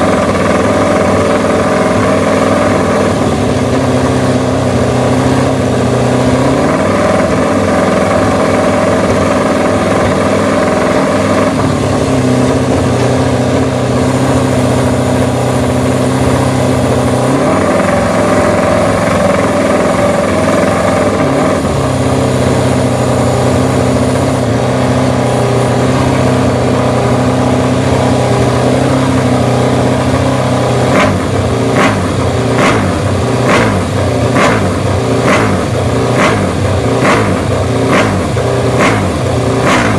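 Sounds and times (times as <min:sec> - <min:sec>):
motorcycle engine running: 0:00.0 - 0:39.9
sharp exhaust cracks: 0:00.0 - 0:39.9.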